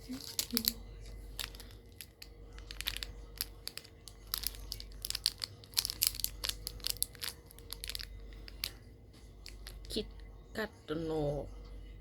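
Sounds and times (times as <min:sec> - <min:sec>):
snack wrapper crinkling and tearing: 0:00.0 - 0:08.8, 0:09.4 - 0:10.0.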